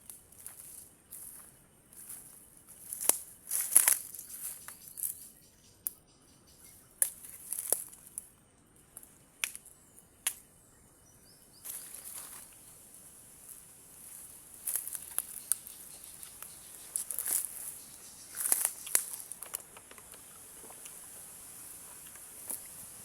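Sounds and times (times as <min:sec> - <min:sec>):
leaves rustling: 0:00.0 - 0:05.3, 0:07.0 - 0:10.4, 0:11.6 - 0:23.0
dry vegetation snapping and crackling: 0:02.0 - 0:05.2, 0:07.0 - 0:10.5, 0:11.6 - 0:23.0.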